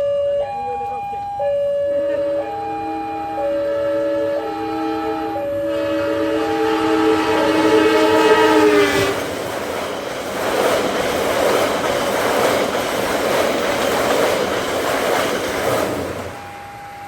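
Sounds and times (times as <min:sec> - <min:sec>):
train horn blast: 0:02.0 - 0:09.4
train rumbling and clattering past: 0:03.4 - 0:17.0.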